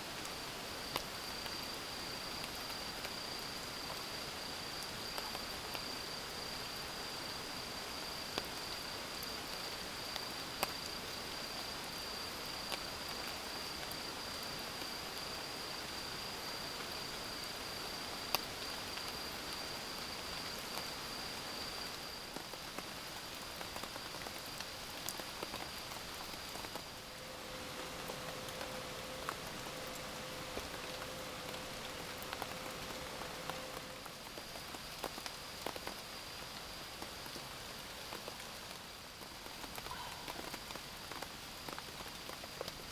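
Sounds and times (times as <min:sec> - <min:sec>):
steady rain: 0:00.0 - 0:42.9
low steady tone: 0:26.9 - 0:34.1.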